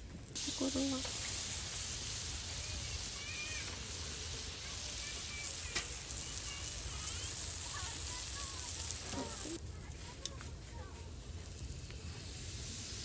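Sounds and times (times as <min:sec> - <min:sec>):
food sizzling in a pan: 0:00.4 - 0:09.6, 0:10.7 - 0:13.0.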